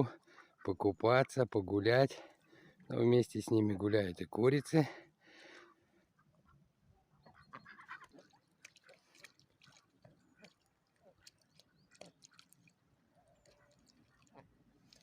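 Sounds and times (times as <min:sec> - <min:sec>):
ducks and chickens calling: 0:06.1 - 0:09.0.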